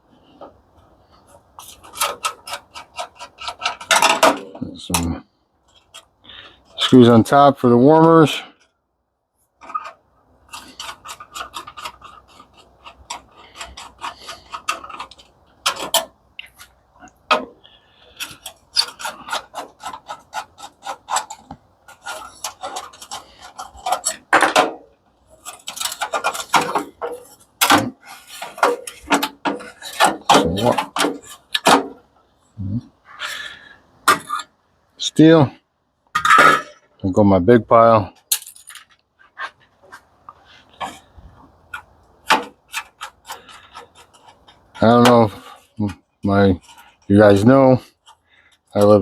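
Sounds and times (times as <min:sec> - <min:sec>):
metal parts scraping and knocking: 0:01.2 - 0:07.1, 0:09.6 - 0:32.2, 0:33.1 - 0:34.6, 0:36.1 - 0:37.0, 0:38.2 - 0:49.0
hand tools clicking on screws: 0:01.6 - 0:04.4, 0:09.6 - 0:31.8, 0:41.7 - 0:45.6.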